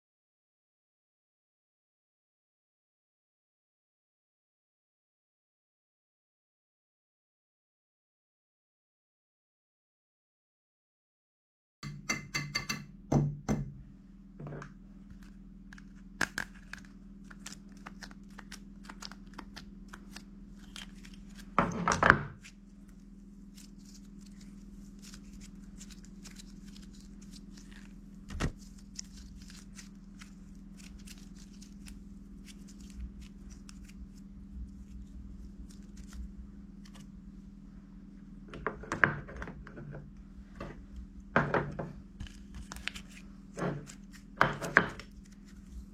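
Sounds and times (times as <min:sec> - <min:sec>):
steady low hum: 0:11.9 - 0:45.9.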